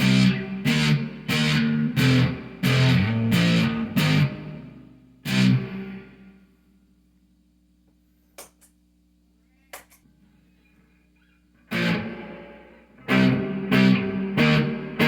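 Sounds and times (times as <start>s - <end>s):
electric guitar chords strummed: 0.0s - 6.4s, 11.7s - 15.0s
amp hum: 0.0s - 15.0s.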